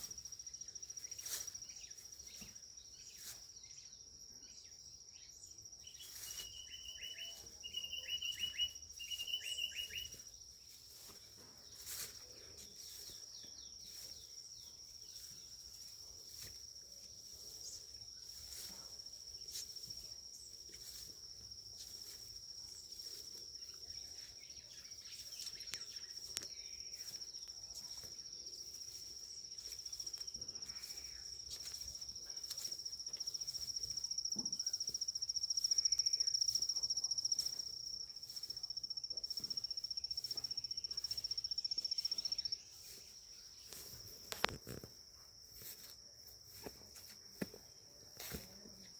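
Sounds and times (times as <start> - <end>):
insect trilling: 5.9 - 11.1
bird calling: 6.2 - 10.3.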